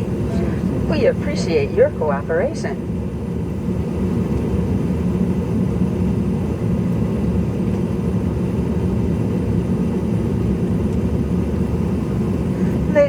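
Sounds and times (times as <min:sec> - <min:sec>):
faint steady hum: 0:00.0 - 0:04.5, 0:11.6 - 0:13.0
low cabin drone: 0:00.0 - 0:04.5, 0:11.4 - 0:13.0.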